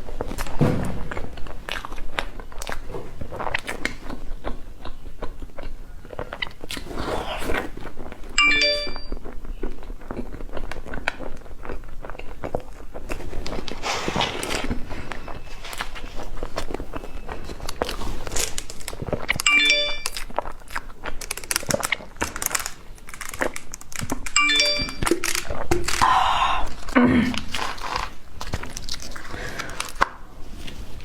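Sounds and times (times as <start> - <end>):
wet chewing: 0.0 - 30.8
crunchy bites: 25.0 - 30.2.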